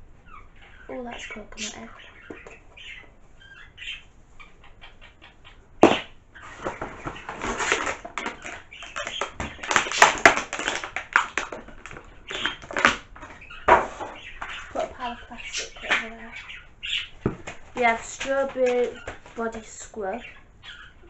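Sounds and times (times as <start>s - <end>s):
plastic wrapping crinkling: 6.4s - 16.2s, 17.2s - 19.8s.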